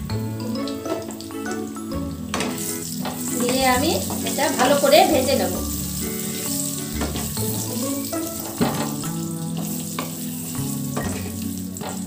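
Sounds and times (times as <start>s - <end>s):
background music with held notes: 0.0s - 12.0s
potatoes sizzling in hot oil: 0.1s - 12.0s
spatula scraping pan: 2.3s - 9.0s.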